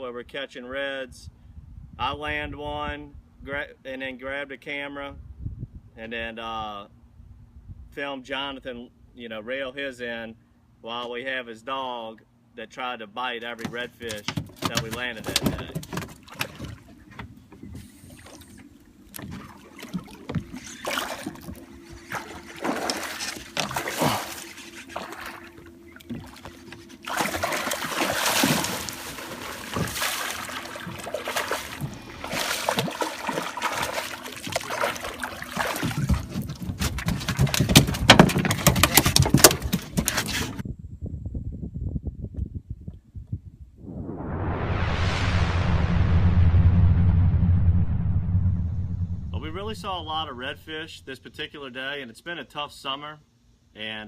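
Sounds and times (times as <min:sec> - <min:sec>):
water splashing: 0:15.2 - 0:17.2, 0:18.0 - 0:39.0, 0:49.3 - 0:51.0
faint steady hum: 0:16.3 - 0:35.7.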